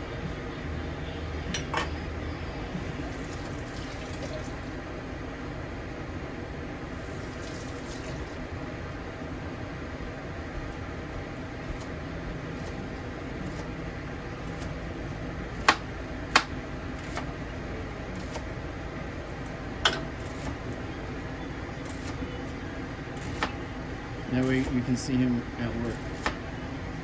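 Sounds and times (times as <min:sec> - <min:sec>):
kitchen background hum: 0:00.0 - 0:27.0
utensils clinking on dishes: 0:01.5 - 0:02.0, 0:19.8 - 0:20.1.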